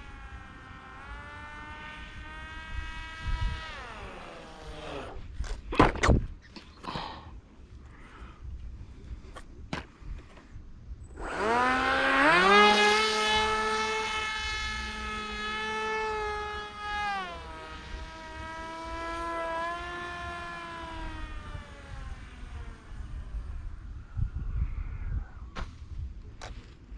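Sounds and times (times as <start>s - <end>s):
electric motor and propeller whine: 0.0s - 5.8s, 11.0s - 25.8s.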